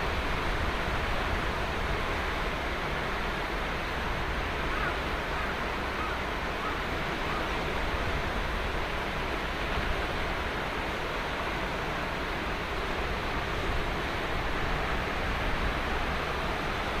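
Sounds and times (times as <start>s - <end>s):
low rumble of waves: 0.0s - 17.0s
ocean surf breaking on beach: 0.0s - 17.0s.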